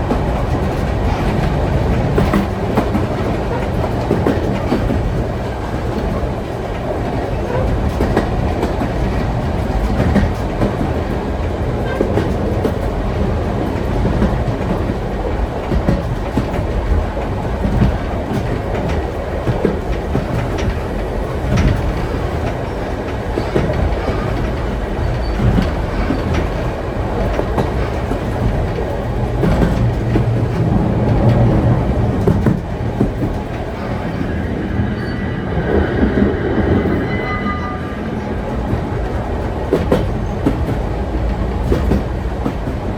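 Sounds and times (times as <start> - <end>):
wheels clicking over rails: 0.0 - 34.9, 38.3 - 42.9
train rumbling on track: 0.0 - 42.9
high wheel squeal: 33.8 - 38.8.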